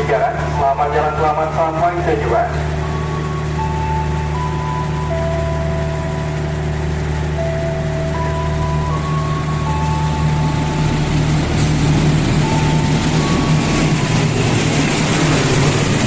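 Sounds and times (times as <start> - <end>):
approaching train rumble: 0.0 - 16.0
locomotive engine idling: 0.0 - 16.0
faint melody of held notes: 2.3 - 11.4.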